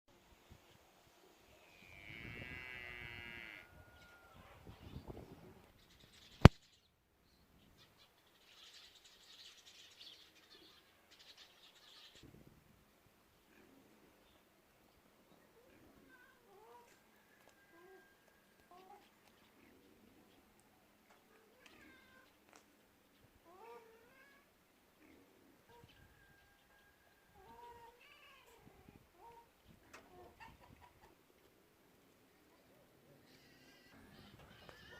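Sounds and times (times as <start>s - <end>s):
small birds chirping: 4.7s - 12.3s, 13.4s - 34.9s
cat meowing faintly: 21.3s - 22.3s.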